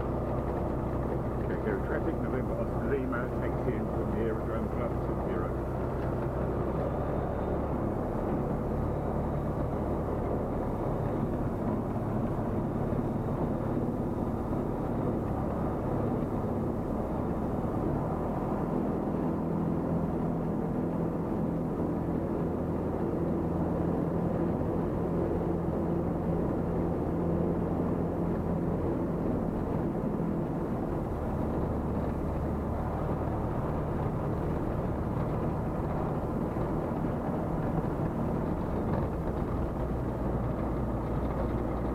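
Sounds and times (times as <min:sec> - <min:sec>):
light aircraft engine and propeller: 0:00.0 - 0:41.9.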